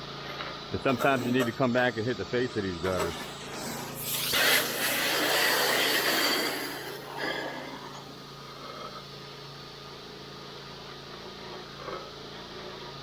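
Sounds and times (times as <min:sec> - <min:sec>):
pressure washer engine running: 0:00.0 - 0:08.4
pressure washer spray hissing: 0:00.9 - 0:07.9.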